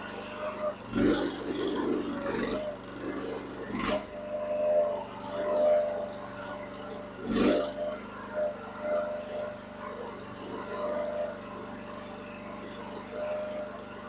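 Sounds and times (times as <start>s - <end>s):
excavator engine running: 0.0s - 9.8s.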